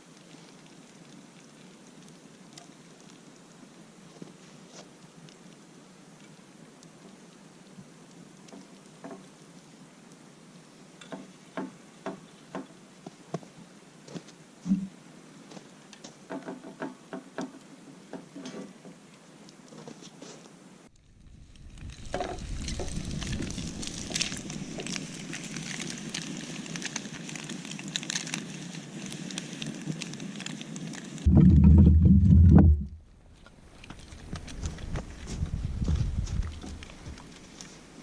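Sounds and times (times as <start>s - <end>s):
wood fire crackling and popping: 0.0s - 10.2s, 20.9s - 38.0s
dense crackle and sizzle: 0.0s - 38.0s.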